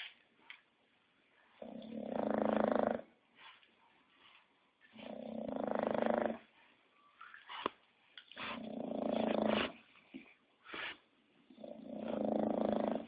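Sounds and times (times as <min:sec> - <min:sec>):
dog snoring: 0:01.6 - 0:03.2, 0:05.0 - 0:06.5, 0:08.4 - 0:09.8, 0:11.5 - 0:13.0
dog breathing: 0:02.0 - 0:13.0.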